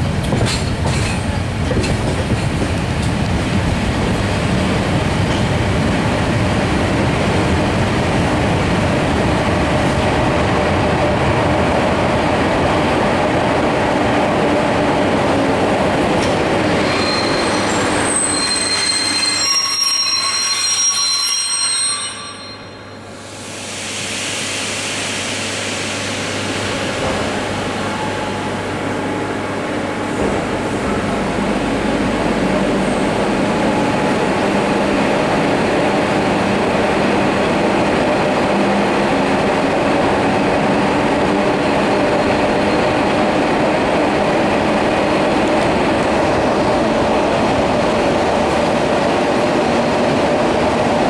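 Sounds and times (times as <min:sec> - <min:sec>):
train wheels rumbling on track: 0:00.0 - 0:21.2, 0:22.3 - 0:51.0
brake squeals: 0:16.8 - 0:22.8.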